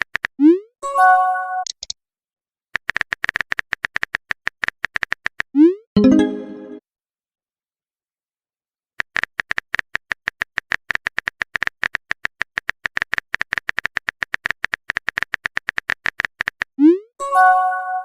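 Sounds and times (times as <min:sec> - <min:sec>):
typing clicks: 0:01.6 - 0:02.0, 0:02.8 - 0:05.5.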